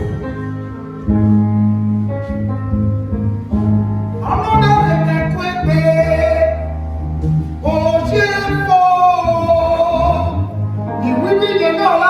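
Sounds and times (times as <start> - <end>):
bass: 0.0 - 12.0
guitar: 0.0 - 12.0
person singing: 4.2 - 6.8, 7.6 - 12.0.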